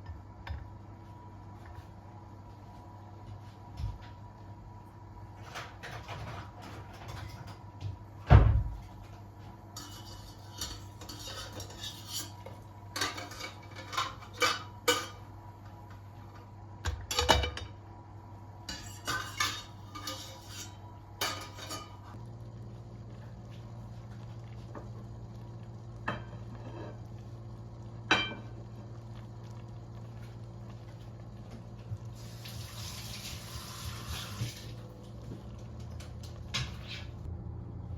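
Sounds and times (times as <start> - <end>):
steady low hum: 0.0 - 37.9
dishes and cutlery clinking: 9.8 - 15.3, 18.7 - 22.2.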